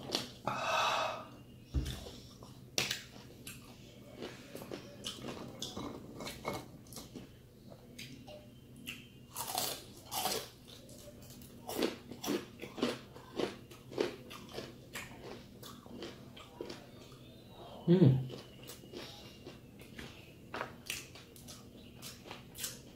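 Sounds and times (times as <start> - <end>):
crispy chicken skin crunching: 9.3 - 16.8.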